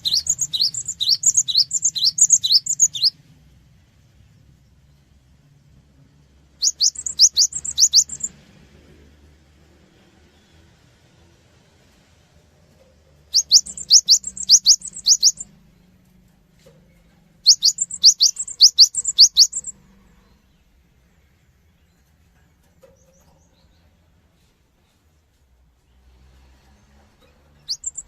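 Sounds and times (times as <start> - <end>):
bird singing sharp high notes: 0.0 - 3.2, 6.6 - 8.3, 13.3 - 15.5, 17.4 - 19.8, 27.6 - 28.0.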